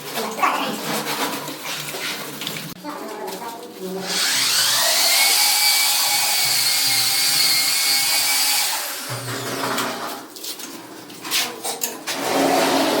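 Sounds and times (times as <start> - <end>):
power tool motor whining: 4.0 - 10.0.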